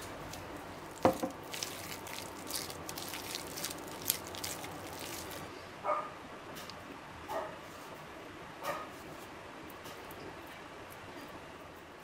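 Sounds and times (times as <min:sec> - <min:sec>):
spoon squishing and scraping filling: 0:00.0 - 0:05.5
wooden spoon knocking a bowl: 0:01.0 - 0:01.4.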